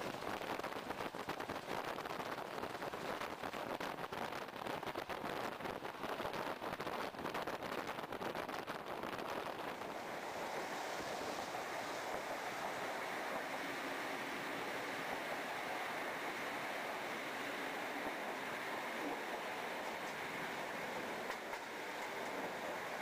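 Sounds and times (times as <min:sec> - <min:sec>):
train wheels on rails: 0:09.7 - 0:23.0
wind rushing: 0:09.7 - 0:23.0.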